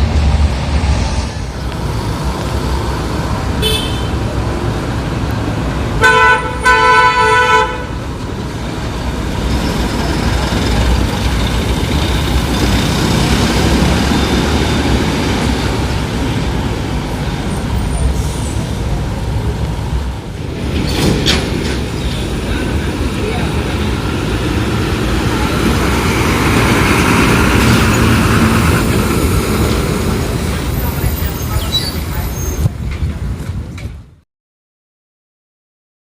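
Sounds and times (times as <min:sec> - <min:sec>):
heavy truck engine running: 0:00.0 - 0:06.0, 0:07.7 - 0:33.8
road traffic noise: 0:00.0 - 0:34.2
vehicle horn blaring: 0:03.6 - 0:04.3, 0:06.0 - 0:08.0.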